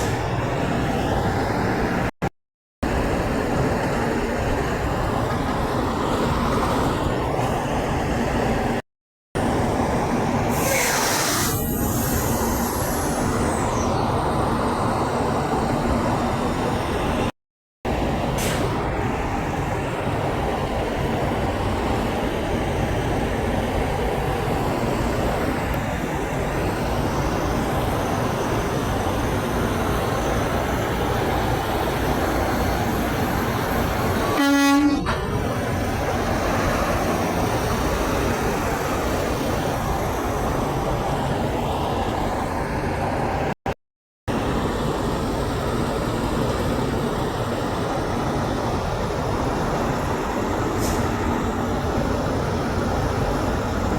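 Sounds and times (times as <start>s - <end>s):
heavy road traffic rumble: 0.0s - 2.2s, 2.8s - 8.8s, 17.9s - 43.6s, 44.3s - 53.9s
truck air horn blast: 34.2s - 35.2s.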